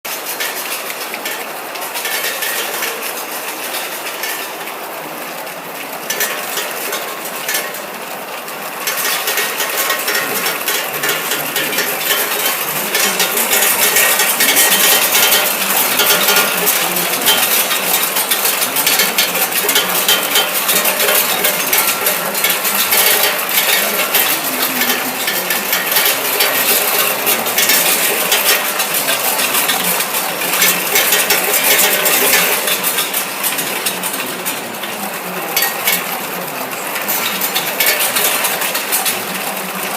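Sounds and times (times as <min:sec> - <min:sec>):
plastic caps clattering in machine: 0:08.9 - 0:39.9.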